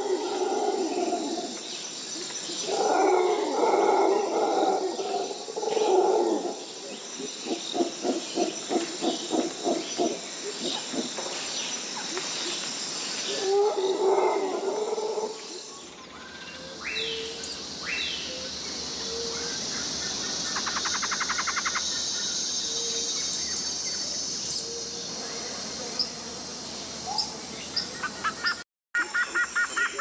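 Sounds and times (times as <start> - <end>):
high insect drone: 0.0 - 28.6
bird calls: 15.9 - 25.0.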